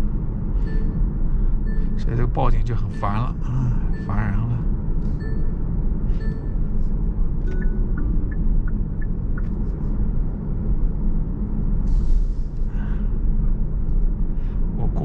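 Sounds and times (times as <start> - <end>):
road and engine rumble: 0.0 - 15.0
short electronic beeps: 0.6 - 1.0, 2.8 - 4.5, 5.1 - 6.6.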